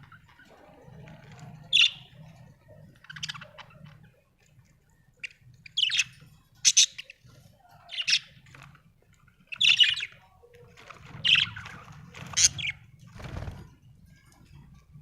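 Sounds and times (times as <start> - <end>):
budgerigars chirping: 1.7 - 2.3, 2.9 - 4.0, 5.2 - 7.3, 7.9 - 8.5, 9.4 - 10.2, 11.2 - 12.8.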